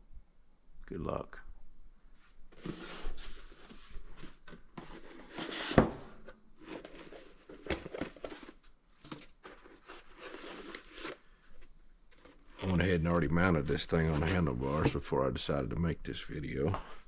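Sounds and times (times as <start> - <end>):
rustling: 2.1 - 15.1.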